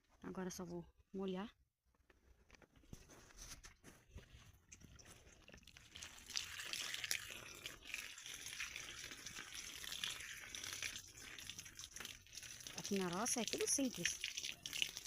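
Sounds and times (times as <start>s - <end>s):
water splashing onto soil: 5.9s - 15.0s.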